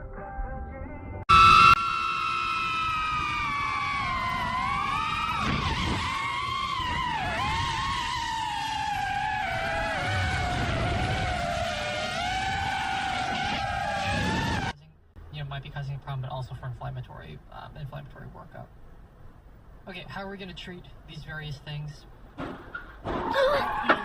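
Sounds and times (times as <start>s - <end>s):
car tyres squealing: 1.3s - 14.8s.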